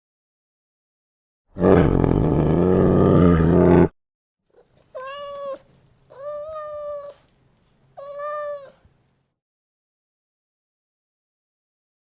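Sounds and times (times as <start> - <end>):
cat meowing: 4.6 - 7.3, 8.0 - 8.8.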